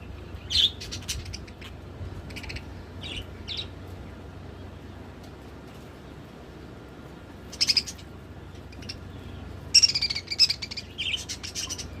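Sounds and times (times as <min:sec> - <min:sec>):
budgerigars chirping and chattering: 0:00.0 - 0:03.8, 0:07.5 - 0:12.0.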